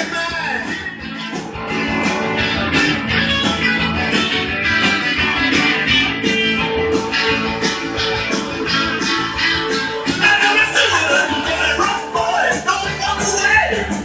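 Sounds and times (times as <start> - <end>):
rock music on vinyl record: 0.0 - 14.0.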